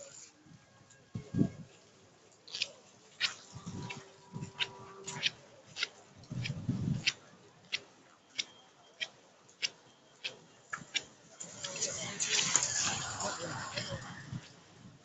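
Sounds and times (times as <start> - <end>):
sharp ticks: 2.5 - 11.2.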